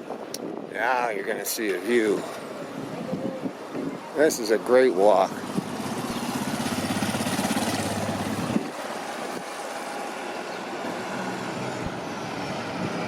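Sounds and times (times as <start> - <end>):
street traffic: 0.0 - 13.0
engine running: 5.2 - 13.0.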